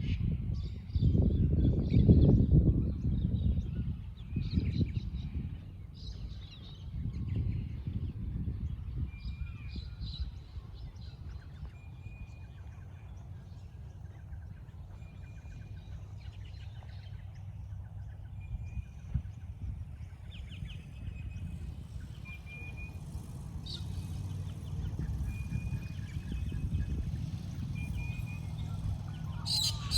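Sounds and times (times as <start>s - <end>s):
constant low rumble: 0.0s - 29.9s
rapid bird chirps: 27.8s - 29.9s.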